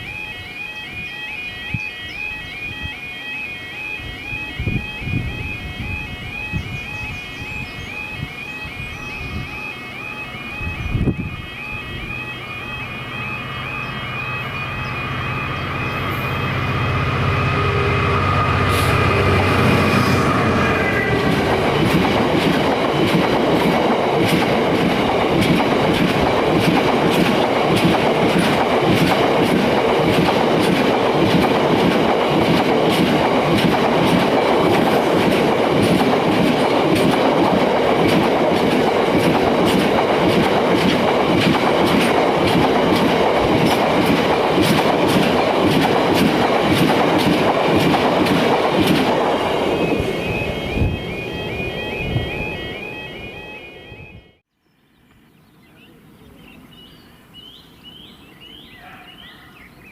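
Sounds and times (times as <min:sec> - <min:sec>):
locomotive engine: 0:08.0 - 0:54.4
train wheels clicking on rails: 0:21.1 - 0:50.9.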